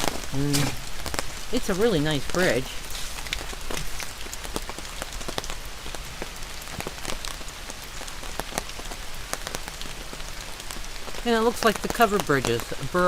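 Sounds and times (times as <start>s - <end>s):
raindrops ticking on a surface: 0.0s - 13.0s
steady rain falling: 0.0s - 13.0s.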